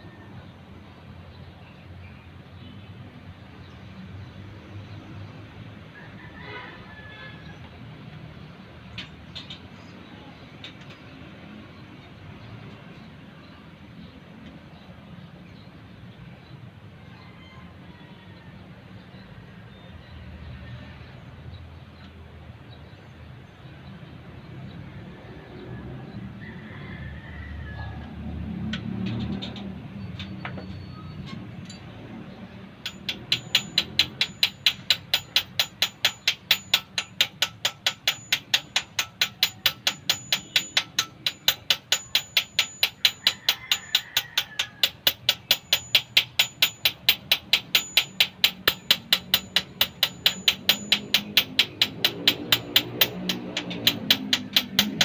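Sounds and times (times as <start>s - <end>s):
hammer tapping on metal: 32.8s - 55.0s.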